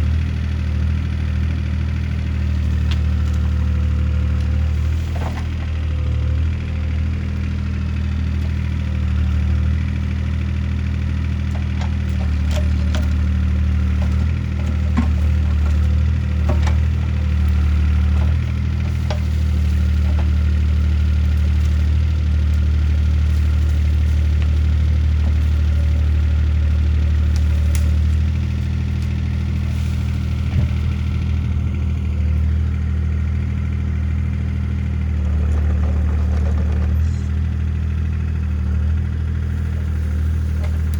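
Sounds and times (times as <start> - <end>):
excavator diesel engine running: 0.0 - 40.9
knocks and cracks of trees: 2.4 - 6.2, 8.1 - 32.9, 35.1 - 40.9.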